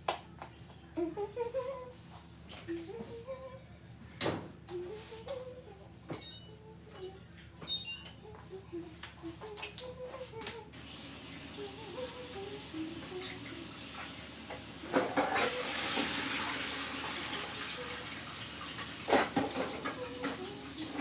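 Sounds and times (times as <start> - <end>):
water running into sink: 13.2 - 21.0.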